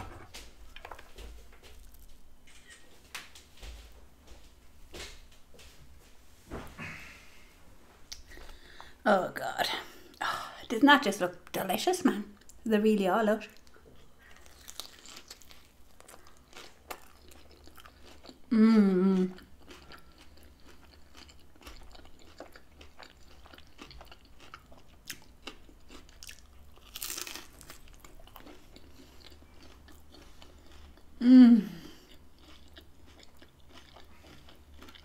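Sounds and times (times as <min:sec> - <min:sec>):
crispy food chewing: 0:00.0 - 0:02.8, 0:13.4 - 0:18.5, 0:19.1 - 0:31.2, 0:31.8 - 0:35.0
person humming mm: 0:18.5 - 0:19.4, 0:31.2 - 0:32.0.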